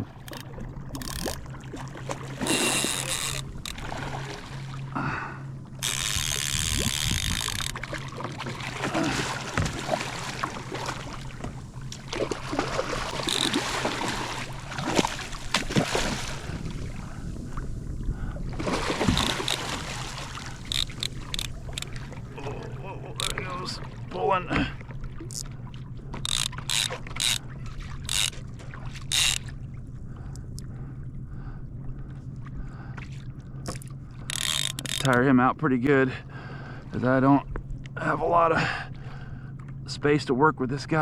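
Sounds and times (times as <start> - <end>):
water splashing around kayak: 0.0 - 35.2
steady low hum: 0.0 - 41.0
gear knocking on hull: 5.8 - 8.6, 12.9 - 15.8, 18.8 - 23.6, 34.2 - 35.2.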